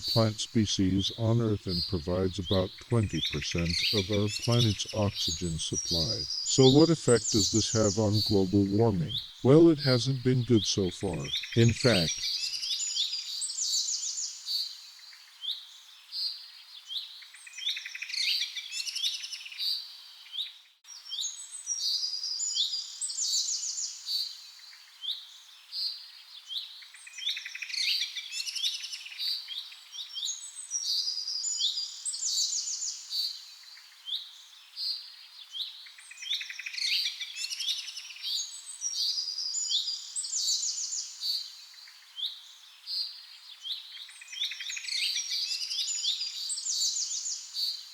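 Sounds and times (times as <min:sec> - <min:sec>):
birds chirping and singing: 0:00.0 - 0:12.6.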